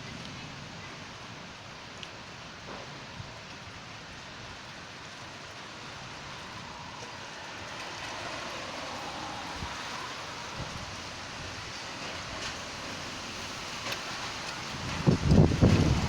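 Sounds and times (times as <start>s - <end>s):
rain: 0.0s - 16.0s
wind: 0.0s - 16.0s.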